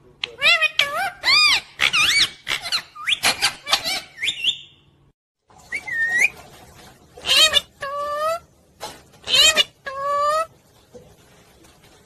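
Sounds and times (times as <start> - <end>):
parrot chirping and whistling: 0.4 - 4.9, 5.7 - 6.4, 7.2 - 8.4, 9.2 - 10.5.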